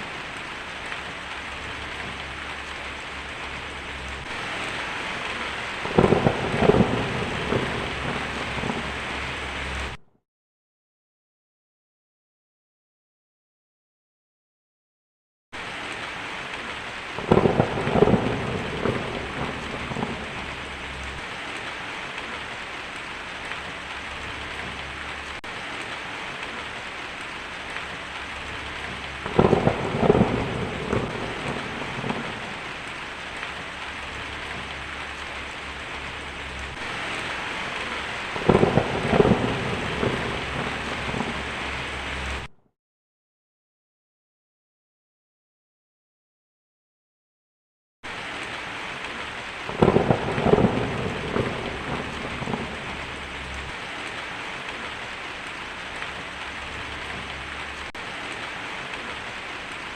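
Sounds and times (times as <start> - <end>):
heavy rain pouring: 0.0 - 10.0, 15.6 - 42.5, 48.1 - 59.9
thunder rumbling: 0.0 - 10.0, 16.6 - 42.5, 49.6 - 59.9.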